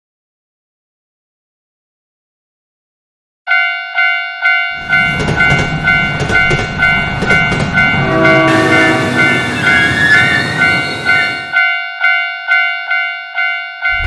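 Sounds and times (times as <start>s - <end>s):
railroad crossing bell ringing: 3.5s - 14.0s
train rumbling past: 4.7s - 11.7s.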